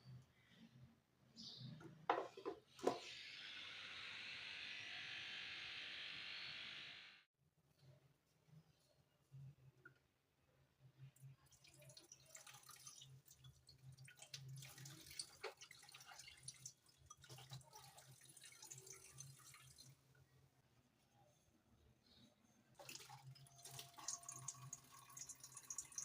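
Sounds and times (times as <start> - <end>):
water drips: 11.2 - 20.0, 22.8 - 26.0.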